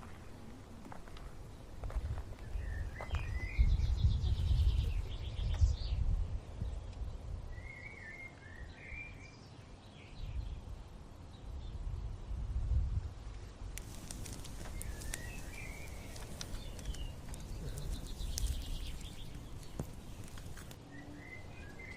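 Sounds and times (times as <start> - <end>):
small birds chirping: 0.0 - 6.0, 13.8 - 21.9.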